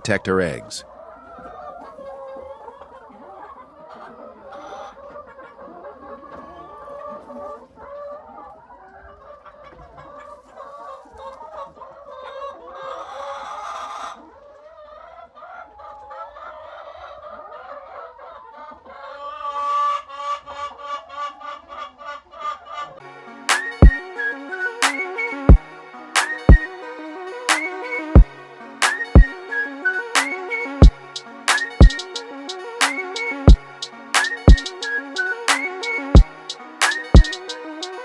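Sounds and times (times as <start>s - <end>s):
chicken loud cackles: 0.0s - 23.0s
chickens clucking: 0.0s - 38.0s.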